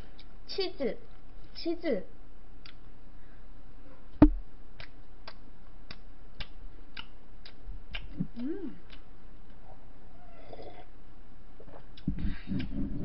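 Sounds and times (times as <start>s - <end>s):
loud thump: 4.2s - 4.5s
sharp mouth clicks: 4.2s - 9.1s.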